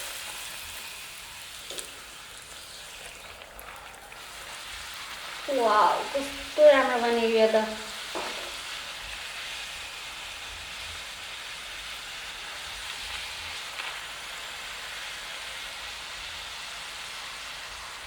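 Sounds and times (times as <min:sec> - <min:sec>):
dough sizzling in hot oil: 0:00.0 - 0:18.0.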